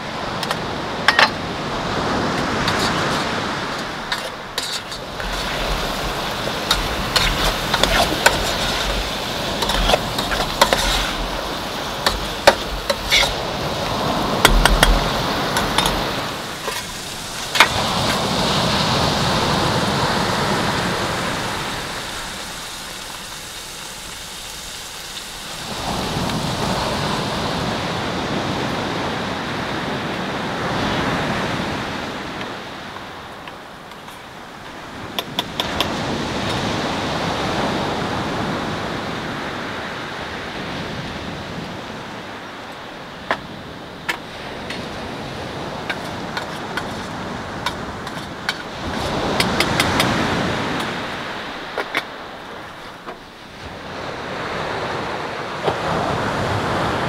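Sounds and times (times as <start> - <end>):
ocean waves: 0.0 - 57.0
wind: 0.0 - 57.0
water pouring: 2.7 - 18.2
vegetables sizzling in oil: 4.1 - 13.5, 21.6 - 26.4.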